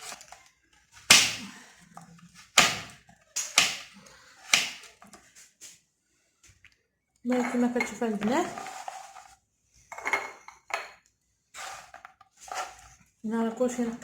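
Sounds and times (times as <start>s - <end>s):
knife chopping on cutting board: 1.1s - 1.4s, 3.6s - 3.9s, 4.5s - 4.8s.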